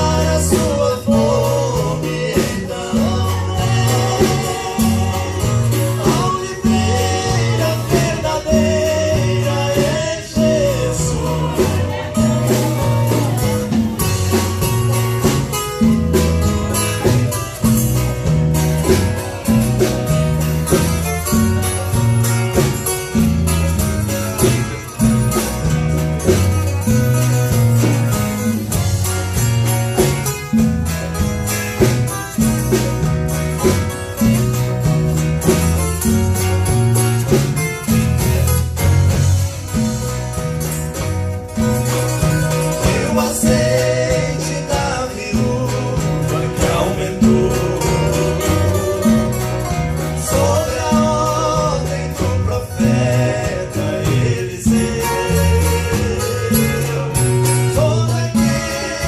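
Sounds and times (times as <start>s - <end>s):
bass line: 0.0s - 59.0s
guitar: 0.0s - 59.0s.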